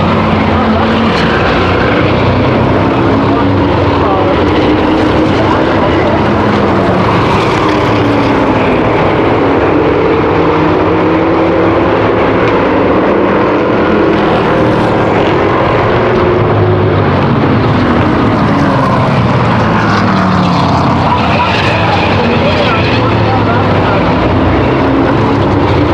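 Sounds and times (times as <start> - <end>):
race car engines passing: 0.0 - 25.9.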